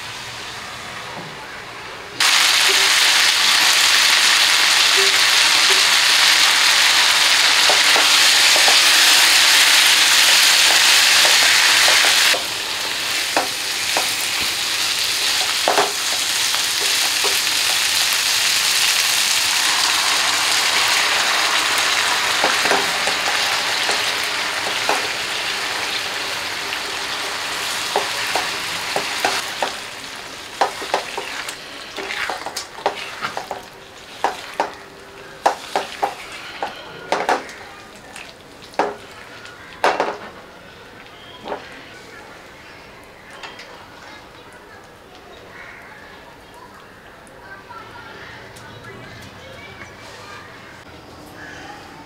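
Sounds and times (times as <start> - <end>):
curry sizzling in hot oil: 2.2 - 40.0
spatula scraping and tapping pan: 7.6 - 9.3, 10.1 - 12.4, 15.2 - 18.1, 22.4 - 25.2, 30.6 - 34.8, 35.4 - 37.6.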